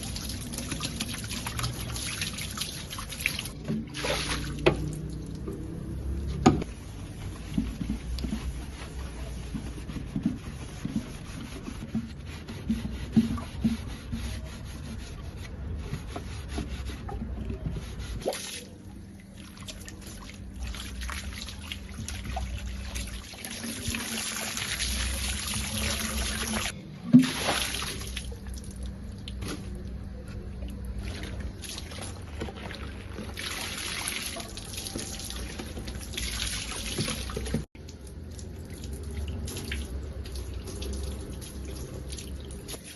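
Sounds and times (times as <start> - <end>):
water trickling and pouring: 0.0 - 6.1, 33.2 - 42.8.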